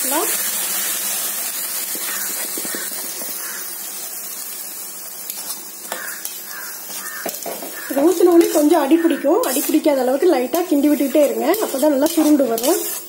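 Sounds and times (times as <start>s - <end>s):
food sizzling in hot oil: 0.0s - 13.0s
spatula scraping and knocking pan: 1.9s - 3.6s, 5.3s - 13.0s.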